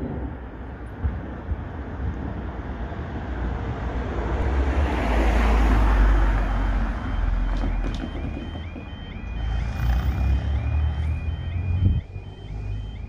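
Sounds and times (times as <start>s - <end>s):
wind rumble on microphone: 0.0s - 9.0s, 11.3s - 13.0s
vehicle passing: 3.3s - 13.0s
electronic warning tone: 6.1s - 13.0s.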